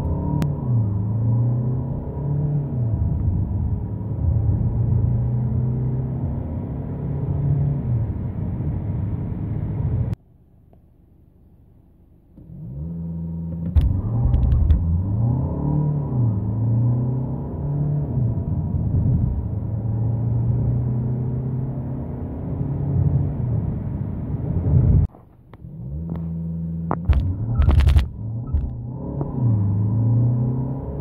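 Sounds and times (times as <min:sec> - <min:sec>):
diesel engine accelerating: 0:00.0 - 0:10.2, 0:12.4 - 0:31.0.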